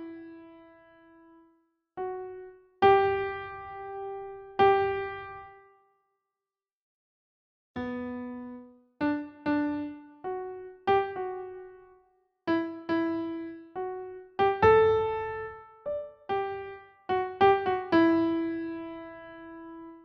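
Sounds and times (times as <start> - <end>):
slow solo piano melody: 2.0 - 5.6, 7.8 - 20.0.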